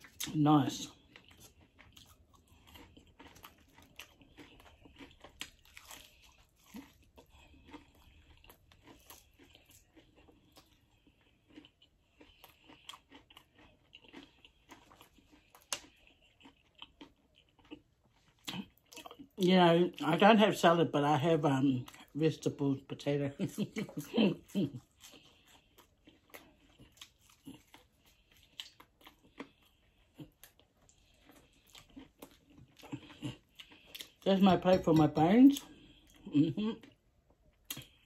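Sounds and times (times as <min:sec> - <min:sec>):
person chewing crunchy food: 0:00.0 - 0:20.6, 0:21.2 - 0:38.0.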